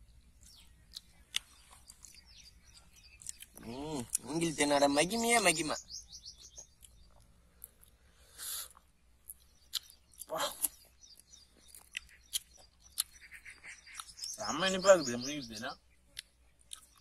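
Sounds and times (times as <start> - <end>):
wet mouth smacks and clicks: 9.3 - 10.8, 11.7 - 13.2, 13.9 - 14.4.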